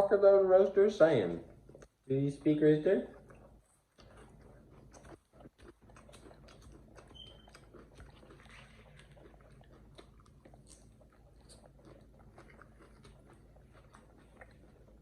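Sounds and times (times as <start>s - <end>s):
animal chewing and crunching: 0.0s - 15.0s.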